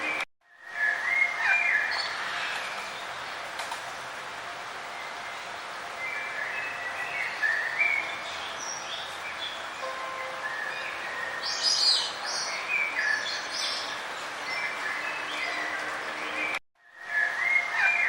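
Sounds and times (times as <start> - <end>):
songbirds chirping: 0.0 - 18.0
steady background hiss: 0.0 - 18.0.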